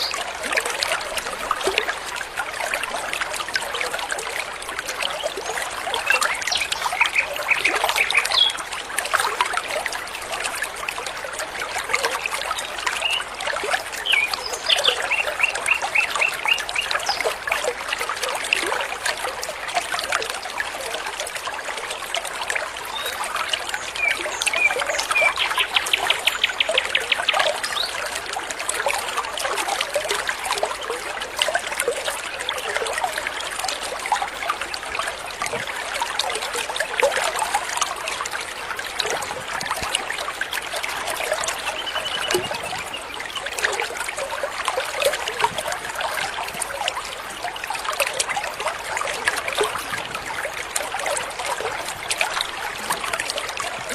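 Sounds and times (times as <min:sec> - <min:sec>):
water trickling over stones: 0:00.0 - 0:53.9
songbirds calling: 0:05.2 - 0:08.6, 0:14.0 - 0:17.4, 0:22.9 - 0:28.0, 0:41.4 - 0:43.4.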